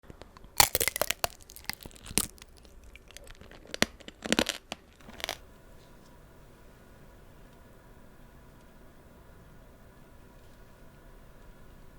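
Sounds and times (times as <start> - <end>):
candy shell crunching: 0.4 - 5.4.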